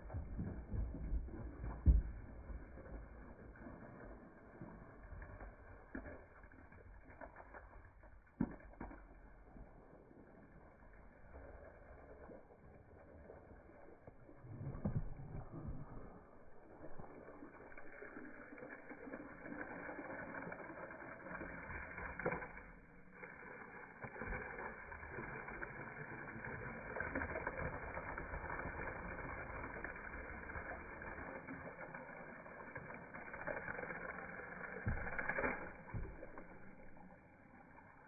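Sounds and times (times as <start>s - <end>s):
hose water splashing on plastic: 0.0s - 38.0s.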